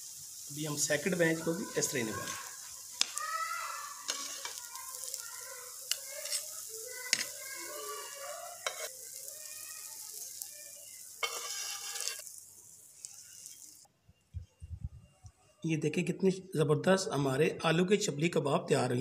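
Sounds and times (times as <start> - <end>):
kababs sizzling in frying oil: 0.0 - 13.9.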